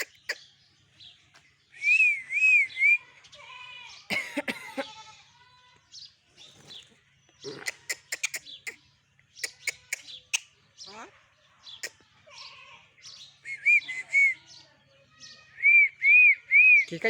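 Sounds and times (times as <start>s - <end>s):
bird clicks and chirps: 0.0s - 0.4s, 6.6s - 10.6s
mynas calling and chattering: 0.0s - 0.6s, 6.6s - 17.0s
harsh rasping bird calls: 0.0s - 1.1s, 1.7s - 17.0s.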